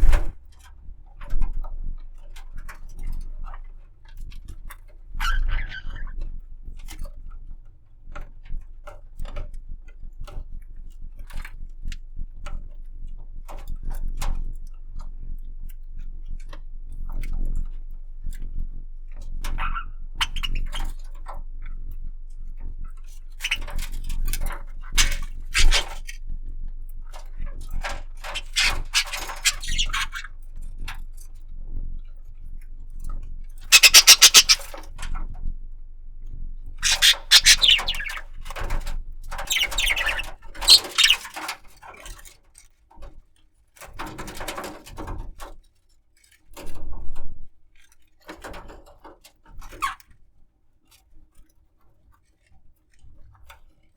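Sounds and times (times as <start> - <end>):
budgerigar chattering: 25.0 - 25.9, 28.3 - 30.2, 33.7 - 34.7, 36.8 - 38.2, 39.5 - 41.3.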